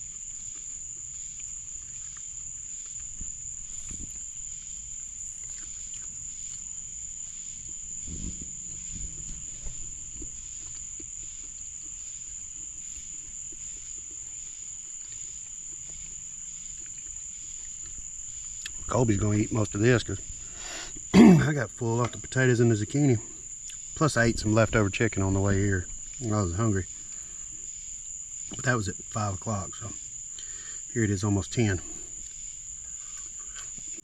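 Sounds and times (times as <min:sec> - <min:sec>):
faint pulsing chirp: 0:00.0 - 0:34.0
insect high-pitched trill: 0:00.0 - 0:34.0
low rustles and knocks: 0:08.0 - 0:10.8.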